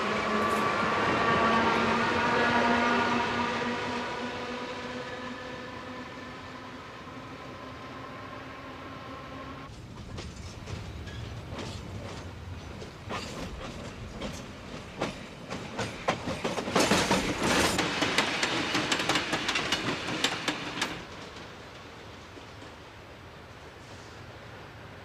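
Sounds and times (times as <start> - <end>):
passing train rumble: 0.0 - 25.0
wheels clicking over rail joints: 9.7 - 22.9.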